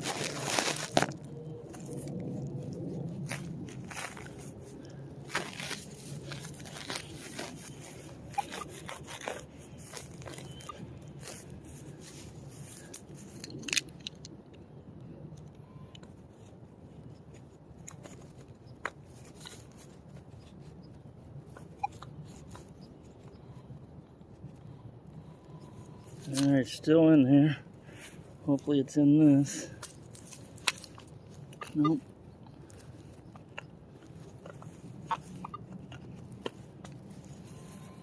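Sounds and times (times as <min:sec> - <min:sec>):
digging tool scraping soil: 0:03.1 - 0:13.6.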